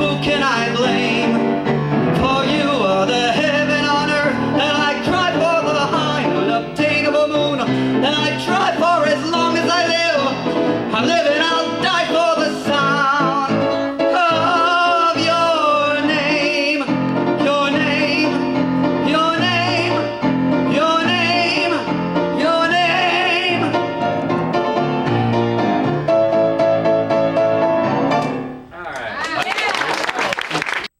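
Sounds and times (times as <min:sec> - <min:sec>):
man singing with vibrato: 0:00.0 - 0:25.4
piano accompaniment: 0:00.0 - 0:28.7.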